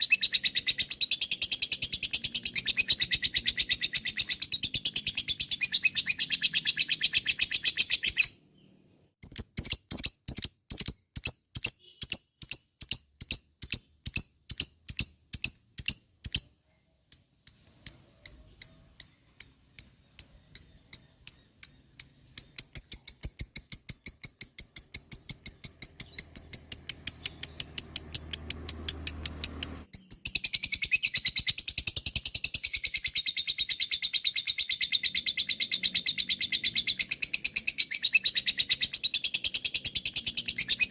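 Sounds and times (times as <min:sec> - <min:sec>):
lovebird chattering calls: 0:00.0 - 0:08.4, 0:09.2 - 0:16.5, 0:17.1 - 0:40.9.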